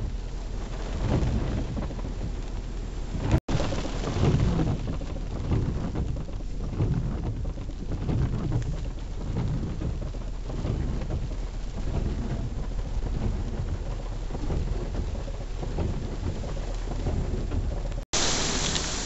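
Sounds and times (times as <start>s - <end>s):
heavy rain pouring: 0.1s - 19.0s
low rumble: 3.1s - 5.8s, 18.2s - 19.0s.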